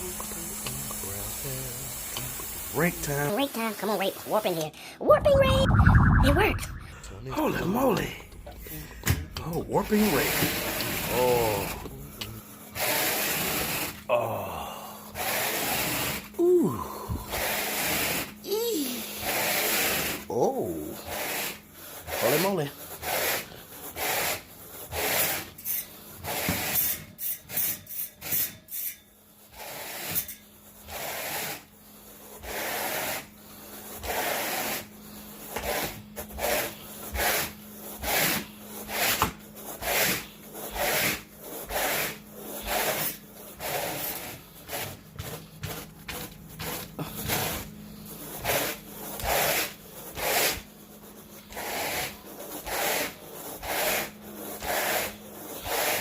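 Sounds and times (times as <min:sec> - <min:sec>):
carpet rake rasping through carpet: 0:09.4 - 0:12.0, 0:12.7 - 0:14.0, 0:15.2 - 0:16.3, 0:17.3 - 0:25.6, 0:26.2 - 0:28.5, 0:29.3 - 0:56.0.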